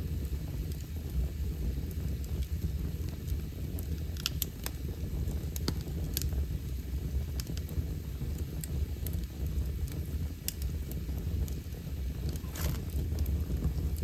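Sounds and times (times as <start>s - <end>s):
fire crackling and popping: 0.0s - 14.0s
low rumble: 10.6s - 14.0s.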